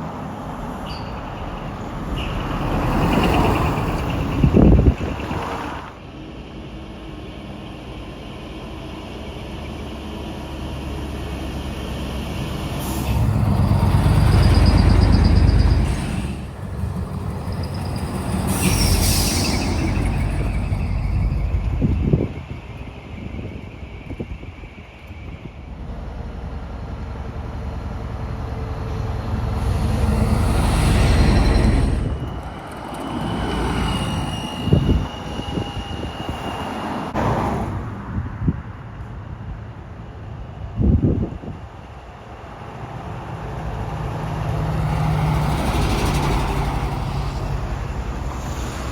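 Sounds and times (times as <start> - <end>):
trucks driving past: 0.0 - 6.0, 10.6 - 22.7, 43.0 - 48.9
truck driving past: 12.2 - 22.2.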